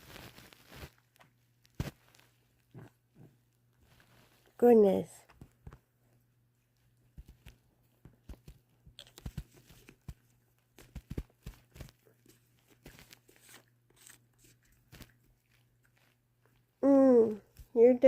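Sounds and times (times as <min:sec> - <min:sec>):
cat chewing catnip: 0:05.9 - 0:16.8.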